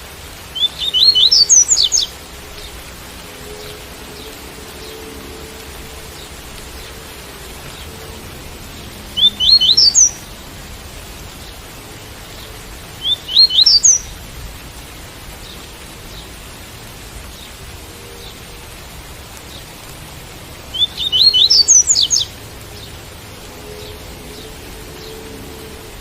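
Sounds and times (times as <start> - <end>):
rain hiss: 0.0 - 26.0.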